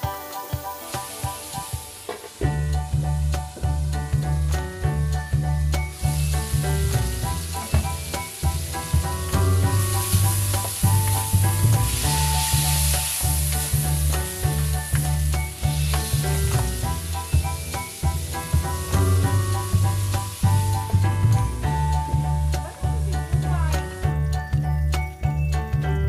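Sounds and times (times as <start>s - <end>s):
meat sizzling in oil: 0.0s - 25.4s
background music with bass: 0.0s - 26.0s
spatula stirring in wok: 5.9s - 22.6s.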